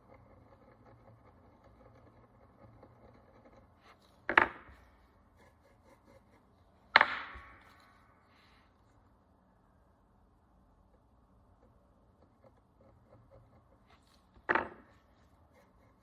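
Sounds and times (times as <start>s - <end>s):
small ticks of tool work: 0.0s - 9.2s, 10.3s - 16.0s
sharp knocks on work surface: 6.9s - 7.7s.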